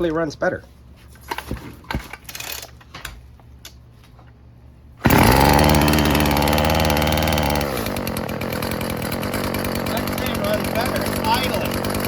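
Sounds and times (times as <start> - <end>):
string trimmer engine running: 5.0 - 12.0.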